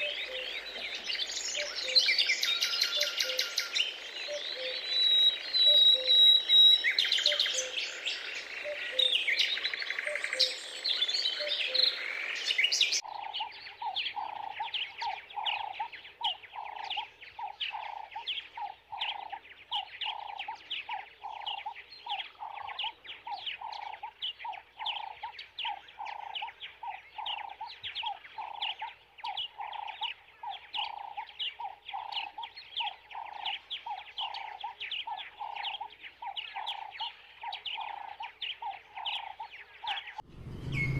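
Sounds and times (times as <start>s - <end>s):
lower-pitched bird call: 0.0s - 8.0s
small birds chirping: 0.0s - 40.9s.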